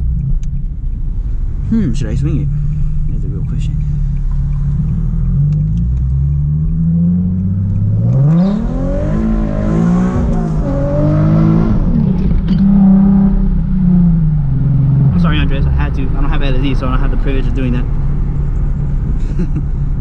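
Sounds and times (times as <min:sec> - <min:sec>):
sports car engine revving: 0:01.5 - 0:19.1.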